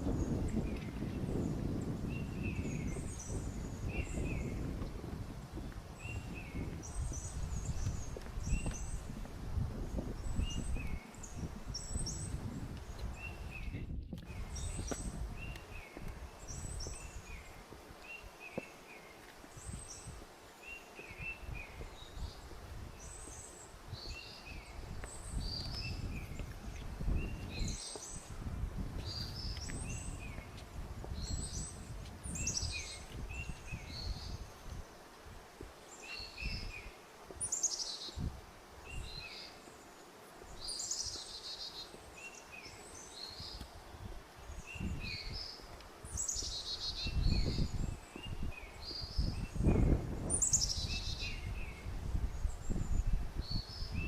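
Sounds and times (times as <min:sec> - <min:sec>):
footsteps on forest trail: 0:00.0 - 0:49.2
small birds chirping: 0:00.0 - 0:54.0.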